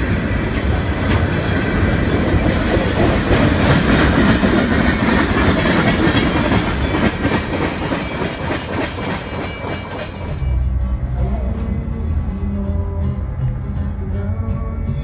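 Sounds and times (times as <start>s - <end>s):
train wheels clattering on rails: 0.0s - 10.8s.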